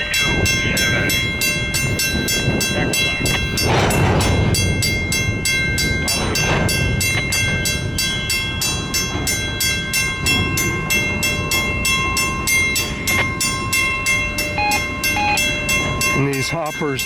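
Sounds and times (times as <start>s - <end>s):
freight train rolling past: 0.0s - 17.0s
high-pitched ringing from rails: 0.0s - 17.0s
wheels clicking on rails: 0.0s - 17.0s.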